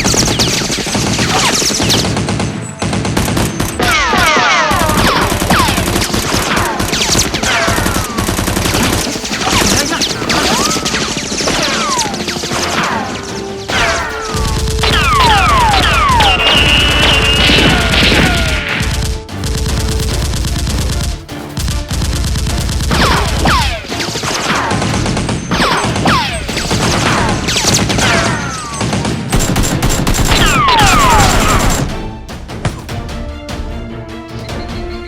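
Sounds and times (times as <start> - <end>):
rapid gunfire: 0.0 - 32.0
background music: 0.0 - 35.0
falling whistles: 15.0 - 18.0.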